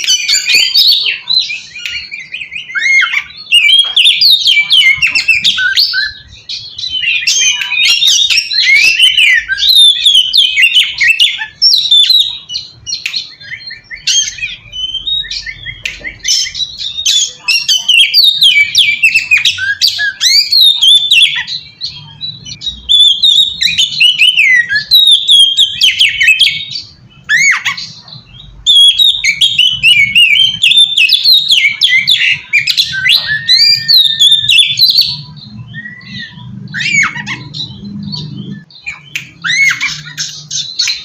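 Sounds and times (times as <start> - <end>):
bird singing whistles and squawks: 0.0 - 41.0.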